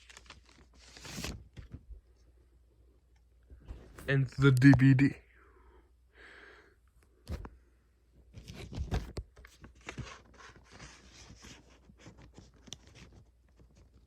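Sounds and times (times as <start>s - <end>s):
small clicks and scrapes: 8.4s - 14.0s.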